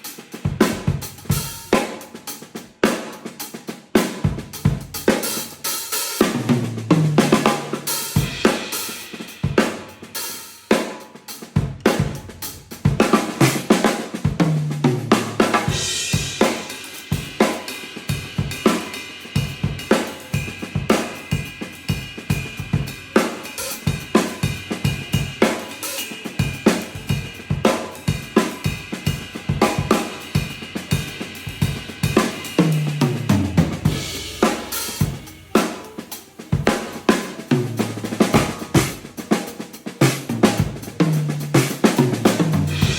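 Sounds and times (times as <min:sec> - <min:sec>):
drum kit solo: 0:00.0 - 0:42.9
cymbal crashes: 0:06.1 - 0:10.8, 0:15.2 - 0:41.0, 0:42.6 - 0:42.9
low tom fills: 0:14.2 - 0:42.9.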